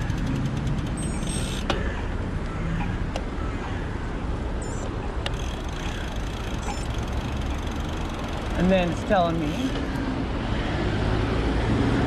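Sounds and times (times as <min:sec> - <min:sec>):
bicycle road noise: 0:00.0 - 0:12.0.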